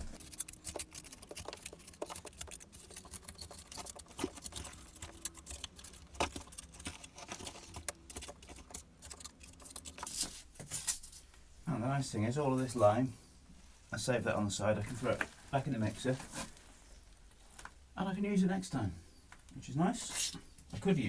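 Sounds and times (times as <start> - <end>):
trowel scraping mortar: 0.0 - 10.3.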